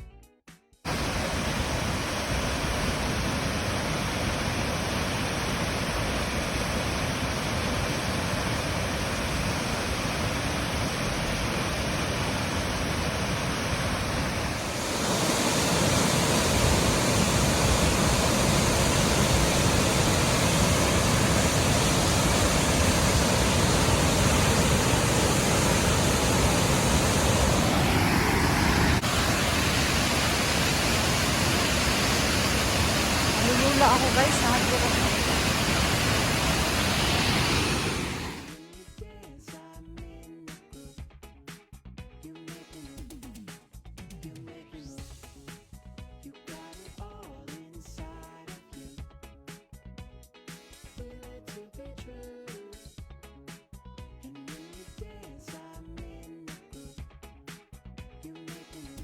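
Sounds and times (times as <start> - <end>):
waterfall rushing: 0.9 - 38.6.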